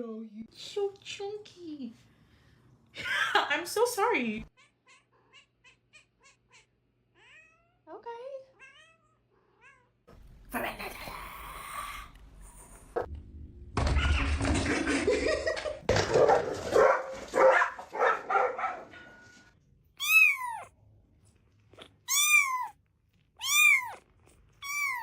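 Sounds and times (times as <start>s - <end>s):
cat meowing: 4.6s - 7.8s, 8.6s - 10.0s, 20.0s - 20.7s, 22.1s - 22.8s, 23.4s - 25.0s.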